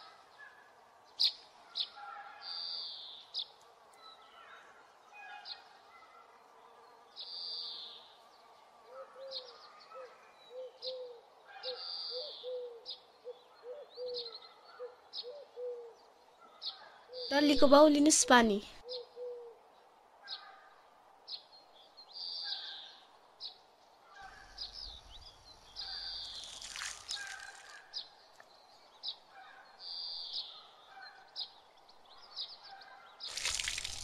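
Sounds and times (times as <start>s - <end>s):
birds chirping: 24.2s - 32.4s, 33.3s - 34.0s.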